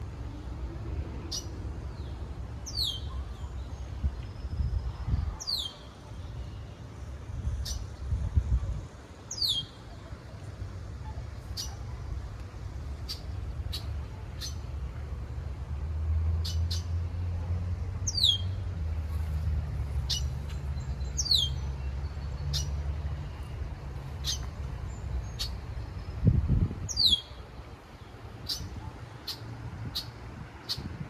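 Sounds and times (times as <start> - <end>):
birds chirping: 1.3 - 8.0, 11.1 - 12.0, 13.0 - 14.7, 18.0 - 30.9.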